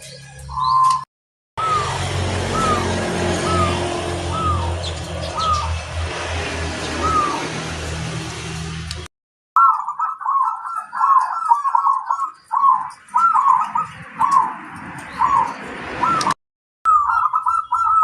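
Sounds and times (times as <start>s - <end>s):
dove cooing: 1.6s - 5.8s, 6.9s - 7.5s, 9.6s - 18.0s.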